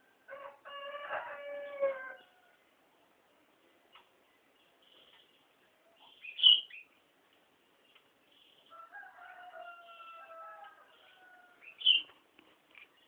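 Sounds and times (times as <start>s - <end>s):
rooster crowing: 0.2s - 2.6s, 8.7s - 11.7s
bulbul calls: 6.0s - 6.9s, 11.6s - 12.1s.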